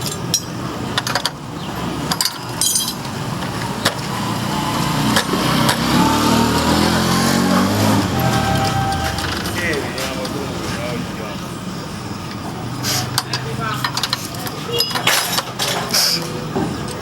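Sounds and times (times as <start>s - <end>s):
engine running: 4.4s - 11.2s.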